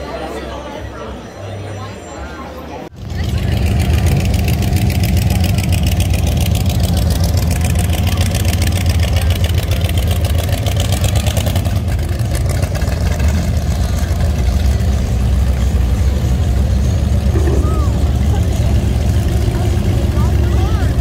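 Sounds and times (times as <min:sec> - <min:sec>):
car engines rumbling past: 0:00.0 - 0:21.0.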